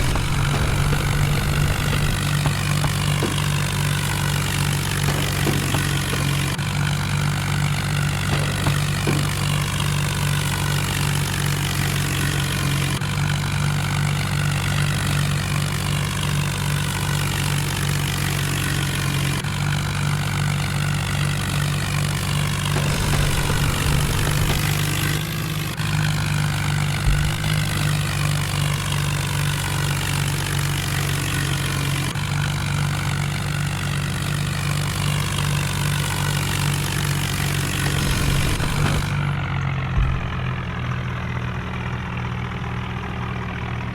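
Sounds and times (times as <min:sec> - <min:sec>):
tractor diesel engine droning: 0:00.0 - 0:43.9
short knock: 0:40.0 - 0:40.8.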